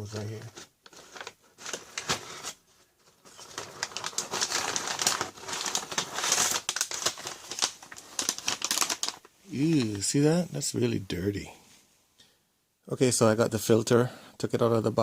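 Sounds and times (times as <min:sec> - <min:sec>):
crackling rustling handling noises: 0:00.0 - 0:10.4.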